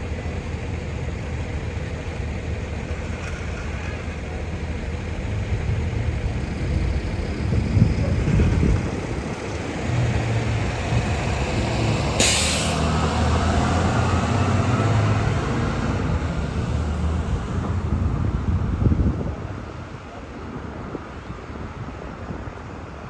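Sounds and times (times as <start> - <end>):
bus engine rumbling: 0.0 - 23.0
air brakes hiss: 12.2 - 12.9.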